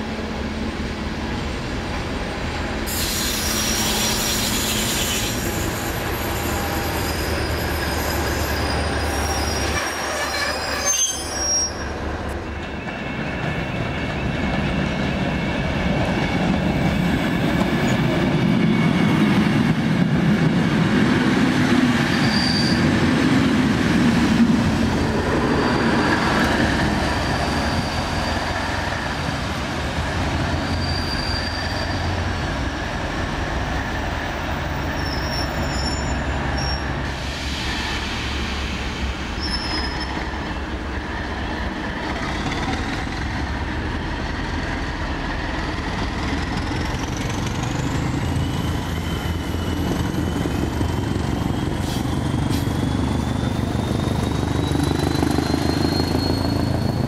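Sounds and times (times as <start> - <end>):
train whine rising in pitch: 24.1 - 29.3.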